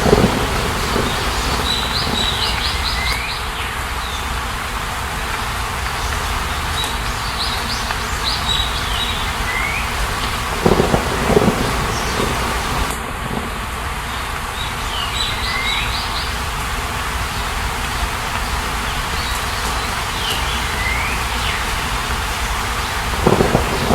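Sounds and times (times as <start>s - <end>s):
water hissing: 0.0s - 3.4s, 4.4s - 13.0s, 14.0s - 23.9s
bird chirping and whistling: 19.2s - 21.6s.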